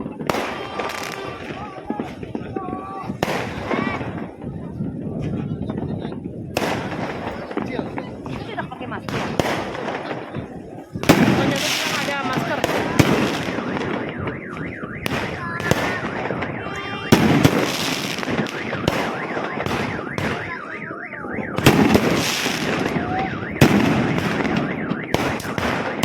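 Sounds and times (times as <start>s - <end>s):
fireworks bangs: 0.0s - 26.0s
fireworks crackling: 0.0s - 26.0s
car alarm warbling: 11.2s - 25.5s.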